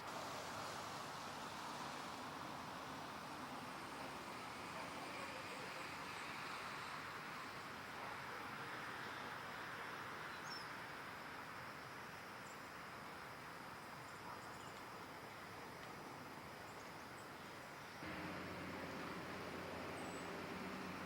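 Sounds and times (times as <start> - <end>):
steady outdoor hiss: 0.0 - 21.0
low steady hum: 18.0 - 21.0.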